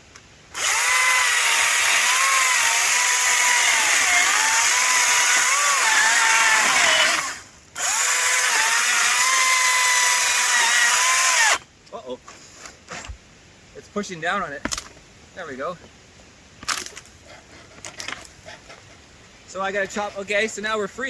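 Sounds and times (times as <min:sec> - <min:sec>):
electric chainsaw cutting wood: 0:00.6 - 0:11.6.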